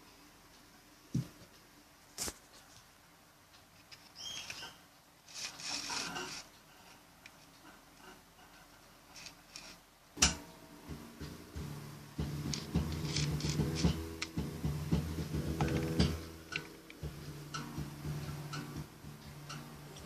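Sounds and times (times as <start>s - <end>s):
rubbing and scraping of containers: 5.3s - 7.0s
music with ticking beat: 10.5s - 20.0s.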